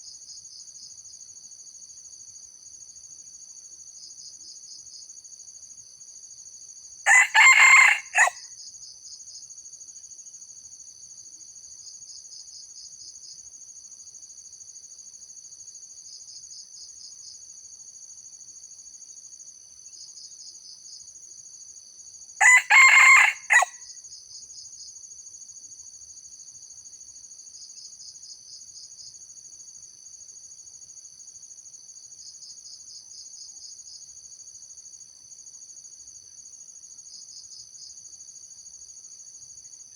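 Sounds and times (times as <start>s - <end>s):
high insect drone: 0.1s - 39.8s
rooster crowing: 7.1s - 8.4s, 22.4s - 23.8s.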